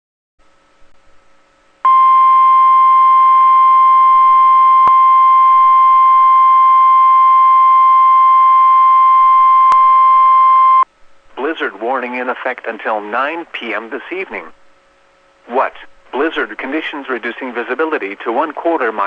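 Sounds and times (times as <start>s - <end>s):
high-pitched alarm tone: 1.9s - 10.8s.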